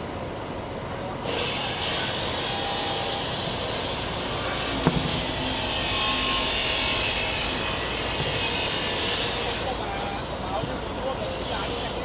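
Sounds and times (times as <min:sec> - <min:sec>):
low machine rumble: 0:03.8 - 0:10.9
sharp knock: 0:04.8 - 0:07.0.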